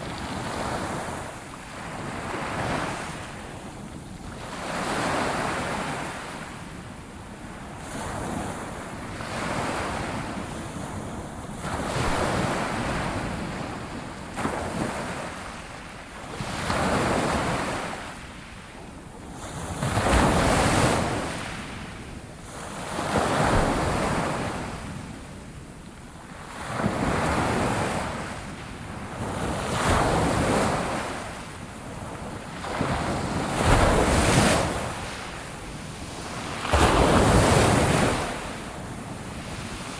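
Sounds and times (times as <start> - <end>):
sea waves breaking ashore: 32.0 - 39.9.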